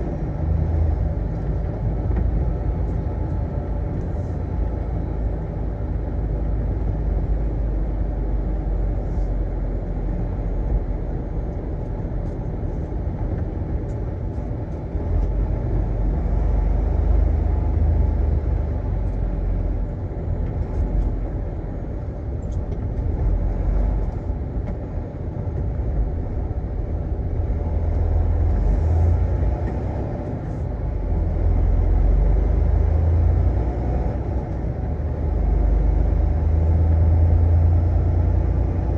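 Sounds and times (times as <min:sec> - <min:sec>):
truck engine and road rumble: 0:00.0 - 0:38.9.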